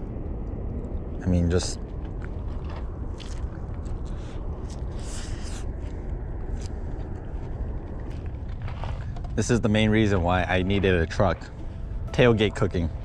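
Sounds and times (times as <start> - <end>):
steady low rumble: 0.0 - 13.0
crisp crunching while chewing: 2.6 - 5.6.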